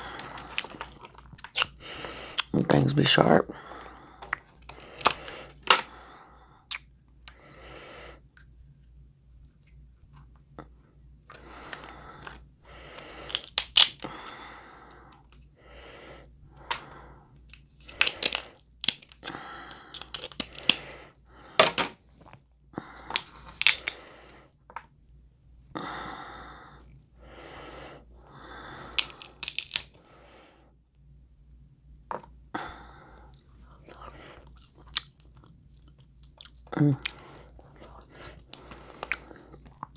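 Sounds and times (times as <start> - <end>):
close-up eating sounds: 0.0 - 2.9, 9.4 - 24.8, 25.8 - 30.4, 32.1 - 39.9
crab shells cracking: 0.2 - 1.8, 4.3 - 5.9, 11.6 - 14.4, 16.7 - 21.0, 23.0 - 24.0, 28.7 - 30.0, 33.9 - 39.9
shell crunching and tearing: 0.2 - 2.5, 4.3 - 5.8, 11.7 - 14.2, 17.5 - 21.0, 23.1 - 24.0, 28.8 - 30.0.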